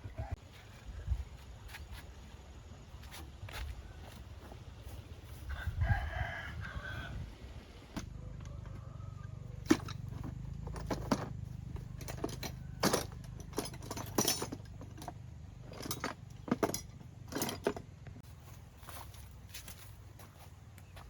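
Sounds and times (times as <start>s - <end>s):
metal tools clinking and rattling: 9.6s - 17.9s.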